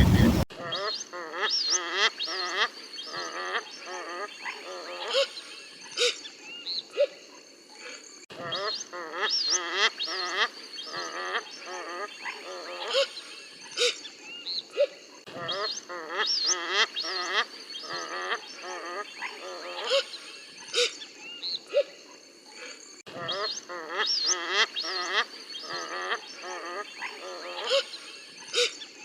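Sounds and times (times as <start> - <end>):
high-pitched drone: 0.0 - 0.4.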